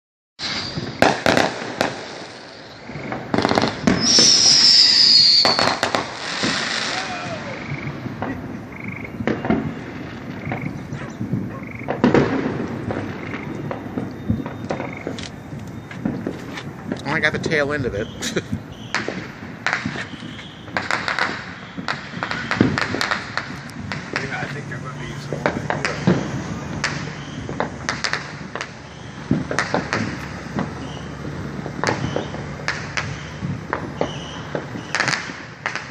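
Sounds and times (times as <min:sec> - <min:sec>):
firework high falling whistle: 0:00.4 - 0:23.3, 0:24.4 - 0:35.5
firework bang: 0:00.4 - 0:35.9
firework crackling pops: 0:00.4 - 0:35.9.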